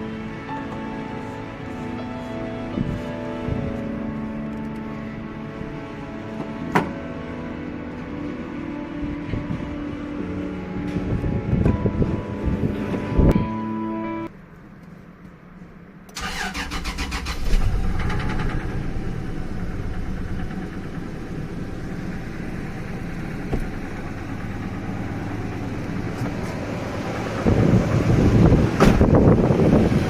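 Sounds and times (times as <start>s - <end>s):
engine cranking and idling: 16.1s - 30.0s.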